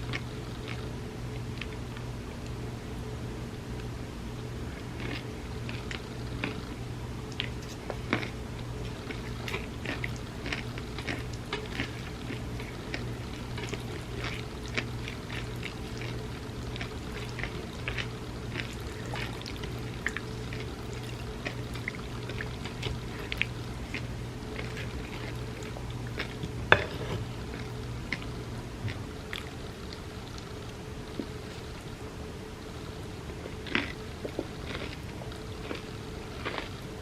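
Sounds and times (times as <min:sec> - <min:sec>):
steady low hum: 0:00.0 - 0:37.0
wet squishing of food being eaten: 0:04.8 - 0:32.0, 0:33.3 - 0:36.8.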